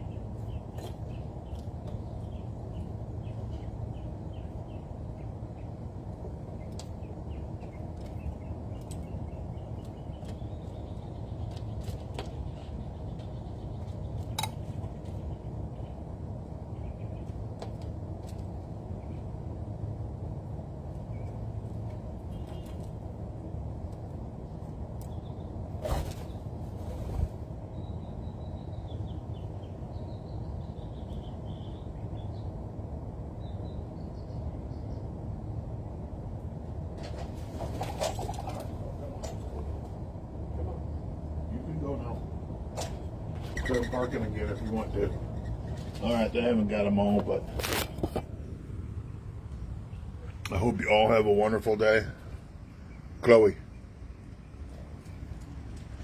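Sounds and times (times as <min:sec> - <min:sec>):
low background rumble: 0:00.0 - 0:56.0
small birds chirping: 0:00.0 - 0:56.0
faint bird chirps: 0:43.4 - 0:46.3.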